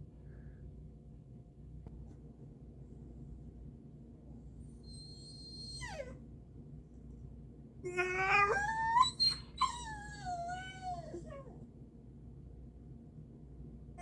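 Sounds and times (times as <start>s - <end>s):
dog whining and crying: 4.8s - 6.2s, 7.9s - 11.6s.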